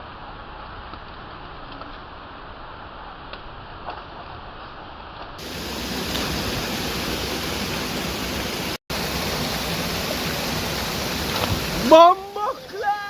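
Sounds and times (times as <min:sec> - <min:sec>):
waterfall rushing: 0:05.4 - 0:13.0.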